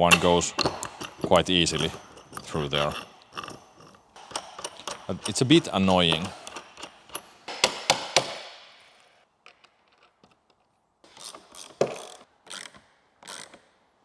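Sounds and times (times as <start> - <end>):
sharp metallic clicks: 0.0 - 8.4
ratcheting hand tool: 0.0 - 8.5, 11.1 - 13.8.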